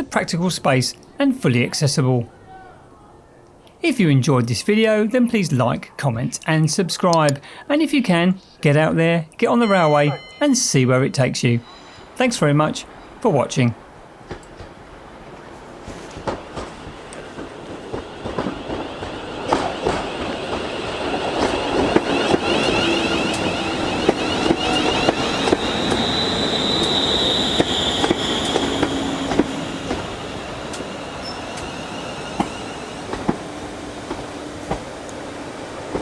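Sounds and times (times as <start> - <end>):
train running on track: 0.0 - 1.4, 7.1 - 36.0
high wheel squeal: 11.5 - 13.2, 15.9 - 36.0
clicks of train wheels: 14.0 - 36.0.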